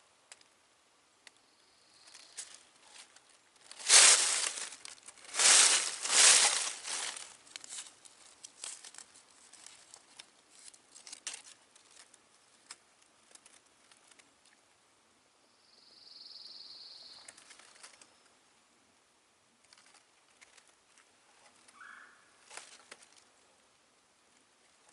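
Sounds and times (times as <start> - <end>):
rustling and crinkling: 2.0 - 14.6, 17.3 - 18.1, 19.6 - 21.8, 22.4 - 23.6.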